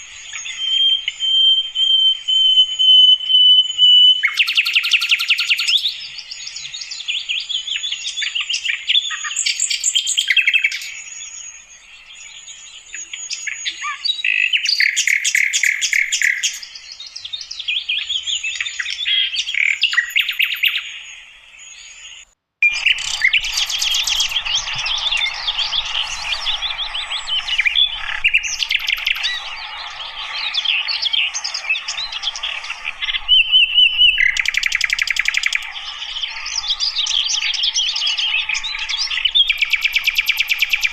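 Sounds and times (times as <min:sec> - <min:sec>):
flycatcher twittering song: 0:00.0 - 0:40.9.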